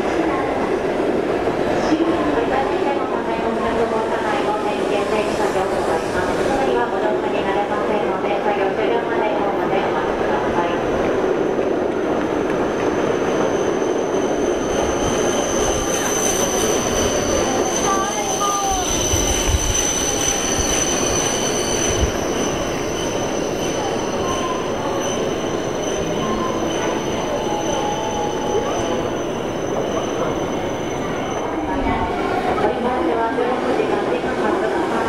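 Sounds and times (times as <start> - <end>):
train wheels rushing: 11.4 - 35.0
high-pitched train whine: 12.9 - 35.0.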